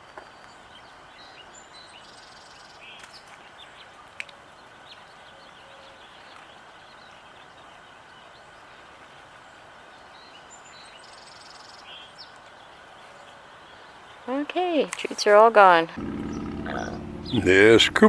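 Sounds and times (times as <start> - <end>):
outdoor background noise: 0.0 - 18.0
small songbirds chirping: 0.0 - 18.0.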